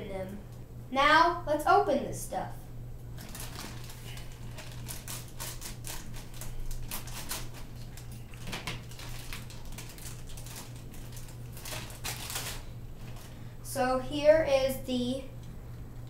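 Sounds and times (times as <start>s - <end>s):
steady low hum: 0.0s - 16.0s
plastic packaging crinkling: 3.2s - 13.4s.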